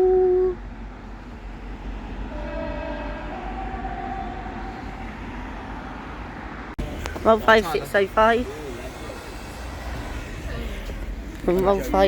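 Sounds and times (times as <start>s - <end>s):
train horn two-note: 0.0s - 0.6s, 2.3s - 4.8s
diesel engine rumble: 0.0s - 12.0s.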